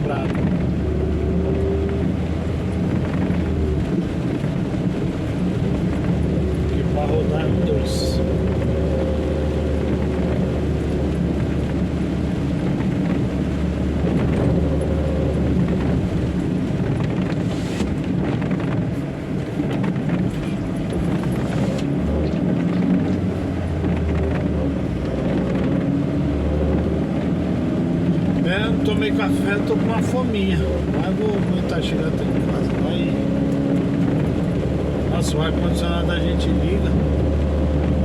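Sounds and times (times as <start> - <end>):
truck engine drone: 0.0 - 38.0
tyres hissing on wet road: 15.0 - 18.2, 18.9 - 25.0.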